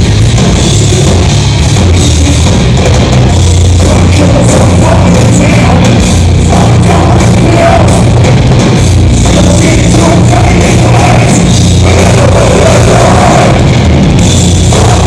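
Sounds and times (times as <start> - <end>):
heavy metal band playing live: 0.0 - 15.0
person singing: 3.8 - 8.3, 9.2 - 13.7, 14.7 - 15.0.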